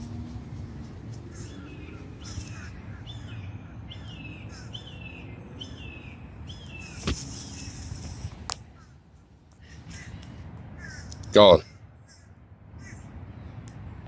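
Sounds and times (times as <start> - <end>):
low outdoor rumble: 0.0 - 4.7
bird chirping: 0.0 - 9.0.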